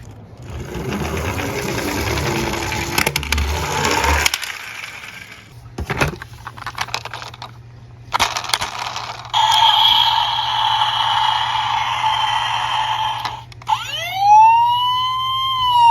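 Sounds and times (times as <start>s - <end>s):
toy cars rolling down a slope: 0.4s - 5.5s, 8.2s - 13.9s
steady high tone: 9.4s - 15.9s.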